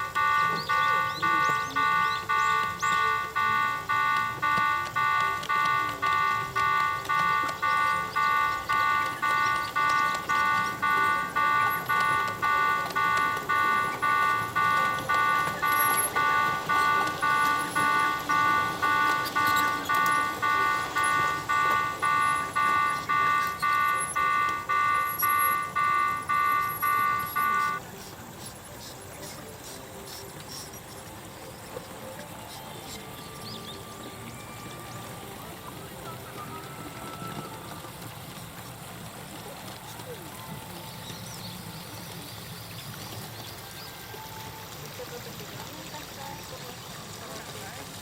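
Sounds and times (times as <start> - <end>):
level-crossing warning bell: 0.0 - 28.0.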